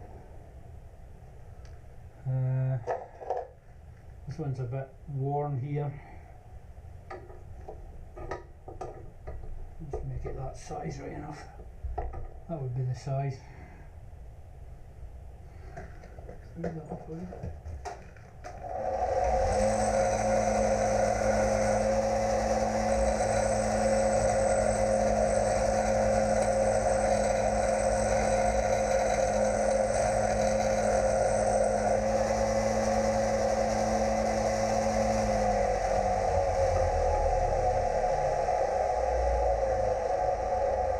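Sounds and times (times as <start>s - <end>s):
metal lathe running: 18.5s - 40.9s
low steady tone: 18.6s - 40.9s.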